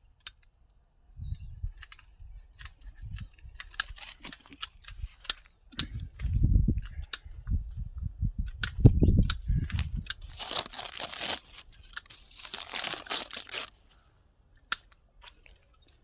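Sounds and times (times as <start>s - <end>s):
sharp clicks and snaps: 0.2s - 0.8s, 8.4s - 10.2s, 14.6s - 15.5s.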